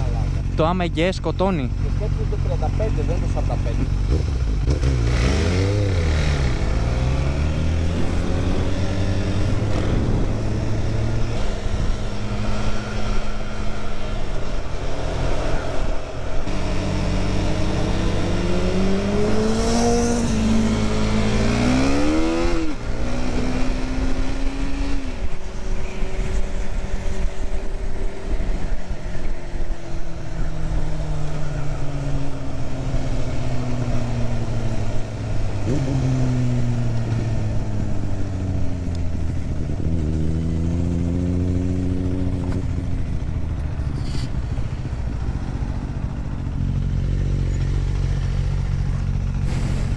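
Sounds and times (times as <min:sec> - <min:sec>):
vehicle engines revving: 0:00.0 - 0:49.9
wind noise: 0:06.5 - 0:29.2.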